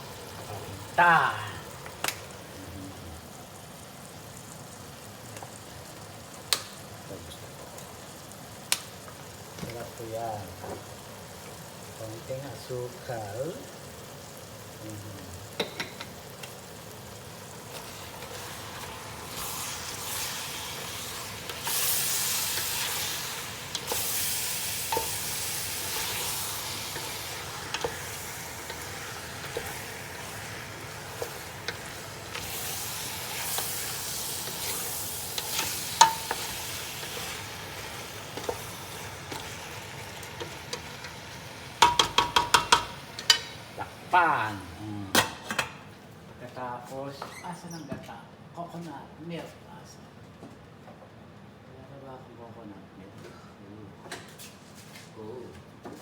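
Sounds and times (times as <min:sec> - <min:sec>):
chicken sizzling in a pot: 0:00.0 - 0:45.7
spoon clicking against pot: 0:41.8 - 0:43.5.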